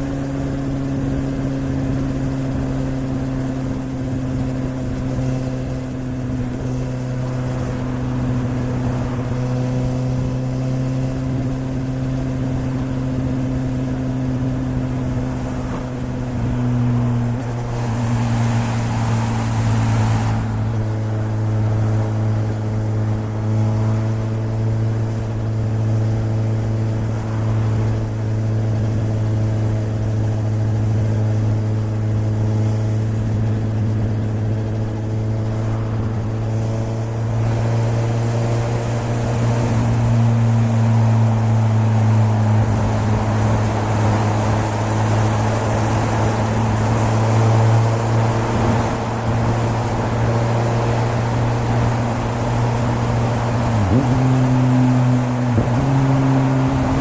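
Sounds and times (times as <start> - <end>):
motorcycle engine running: 0.0 - 57.0
rushing wind noise: 0.0 - 57.0.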